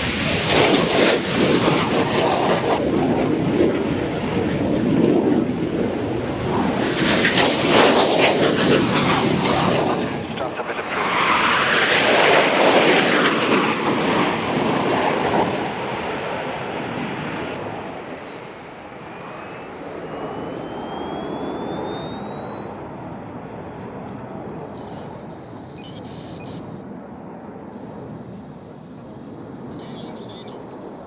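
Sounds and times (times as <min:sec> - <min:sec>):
aircraft engine passing: 0:00.0 - 0:31.0
thin rising whine: 0:18.7 - 0:26.7.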